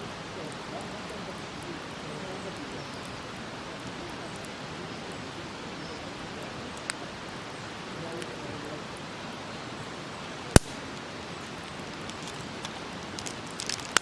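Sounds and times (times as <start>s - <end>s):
campfire hissing: 0.0s - 14.0s
fire crackles: 0.0s - 14.0s
sharp loud pop: 10.6s - 10.8s.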